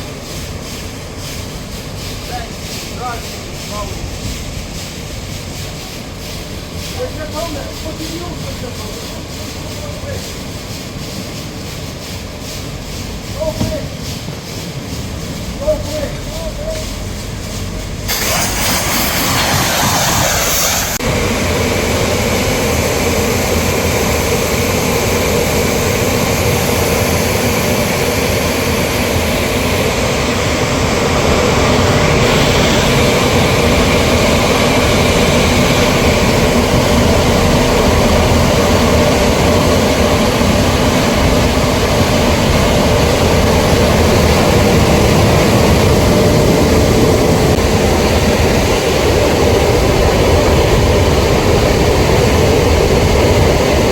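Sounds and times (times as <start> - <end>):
pressure washer jet spraying: 0.0 - 53.9
machine hum: 11.0 - 53.9.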